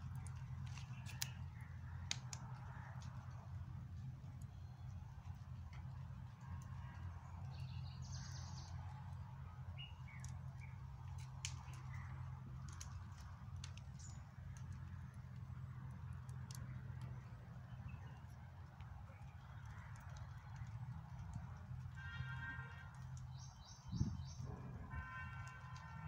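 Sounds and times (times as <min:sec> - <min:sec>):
small clicks: 0:00.1 - 0:01.4, 0:02.0 - 0:03.4, 0:17.9 - 0:23.8.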